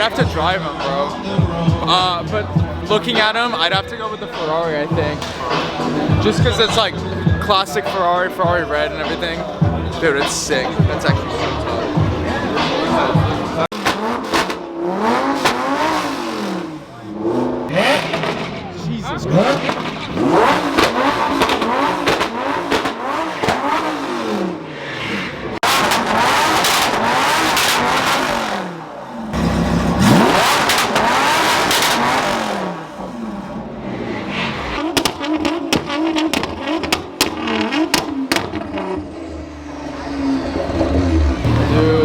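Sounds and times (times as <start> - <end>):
car engine revving: 0.0 - 42.0
exhaust pops and crackles: 13.6 - 14.7, 19.4 - 23.8, 25.6 - 28.5, 29.3 - 33.0, 34.8 - 39.0.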